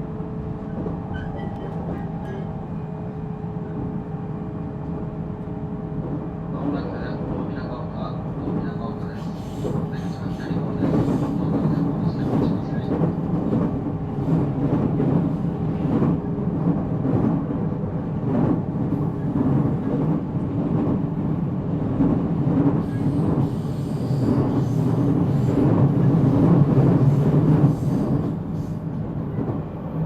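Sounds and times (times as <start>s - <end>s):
train wheels on rails: 8.4s - 29.7s.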